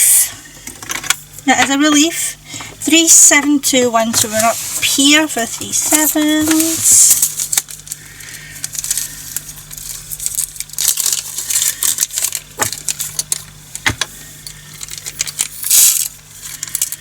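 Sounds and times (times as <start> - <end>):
plastic beads rattling into container: 8.6 - 13.5, 14.8 - 17.0.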